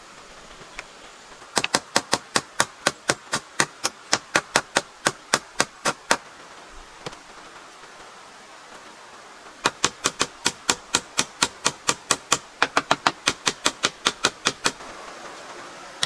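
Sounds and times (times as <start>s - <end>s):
hand tool striking wood: 1.5s - 6.2s, 9.6s - 14.8s.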